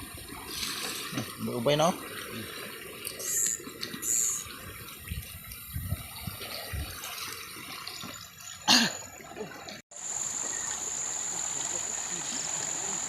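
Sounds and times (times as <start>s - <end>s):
water splash: 0.0s - 9.7s
water sloshing and gurgling: 0.0s - 9.8s
rushing water: 0.0s - 13.0s.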